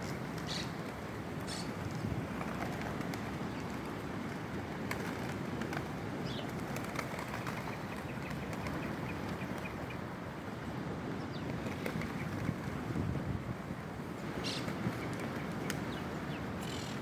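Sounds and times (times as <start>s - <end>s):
rushing wind or surf: 0.0s - 17.0s
pigeon wing flaps: 0.1s - 9.8s, 11.5s - 12.9s, 14.6s - 15.9s.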